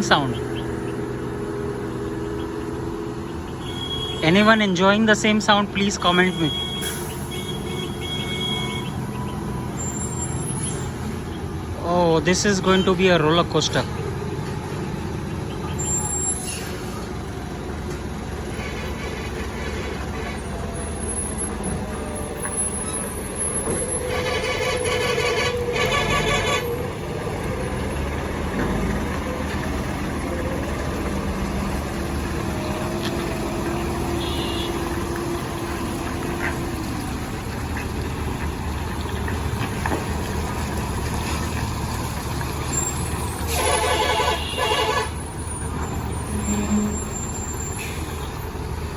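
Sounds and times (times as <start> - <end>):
road noise: 0.0 - 48.9
truck and bus engines running: 0.0 - 48.9.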